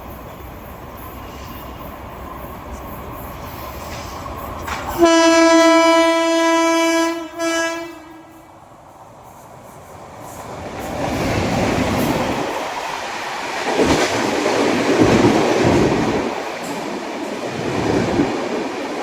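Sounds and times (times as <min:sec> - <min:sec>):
train rumbling: 0:00.0 - 0:19.0
electric locomotive horn: 0:04.9 - 0:08.5.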